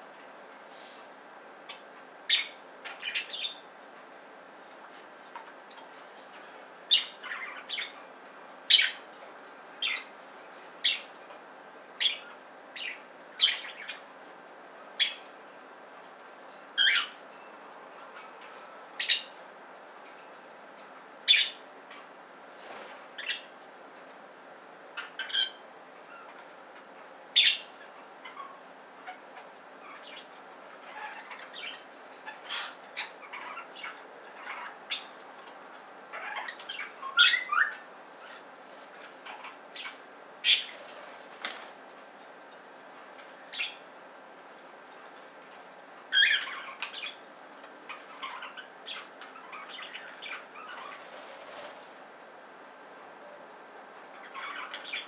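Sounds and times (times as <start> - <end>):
faint steady hiss: 0.0 - 55.0
budgerigars chirping: 12.0 - 14.0, 16.8 - 17.2, 36.1 - 37.8, 46.1 - 47.2, 47.9 - 51.1, 54.2 - 55.0.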